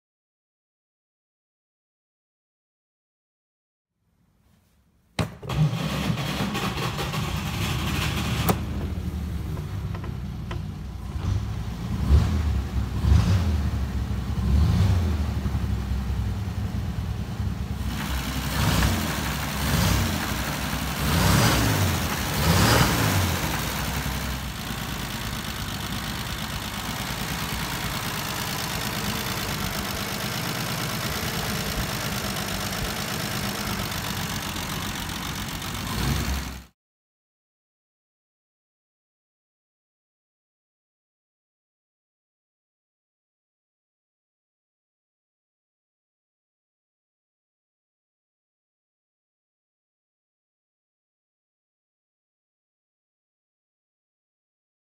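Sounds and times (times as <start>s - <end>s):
car engine revving and idling: 5.7s - 36.7s.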